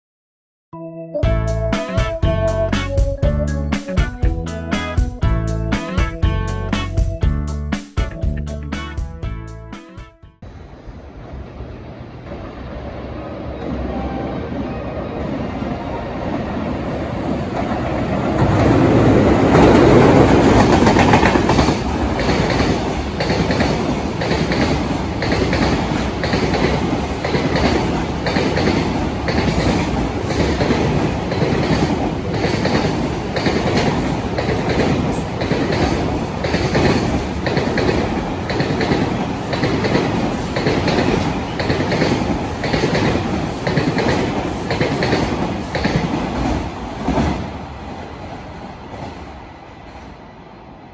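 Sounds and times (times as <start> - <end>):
freight train passing: 10.4 - 50.9
wagon wheels clacking over rail joints: 17.6 - 47.3.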